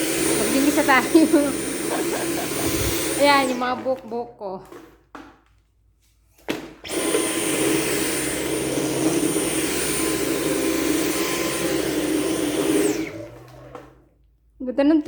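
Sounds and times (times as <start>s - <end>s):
cordless vacuum running: 0.0s - 4.3s, 6.8s - 14.1s.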